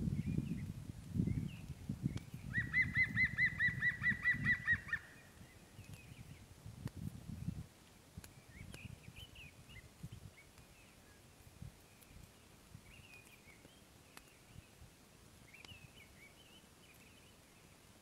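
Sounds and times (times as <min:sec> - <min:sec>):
small birds chirping: 0:00.0 - 0:18.0
faint clicks: 0:05.8 - 0:06.1, 0:07.8 - 0:08.9, 0:13.0 - 0:14.4, 0:15.6 - 0:15.8.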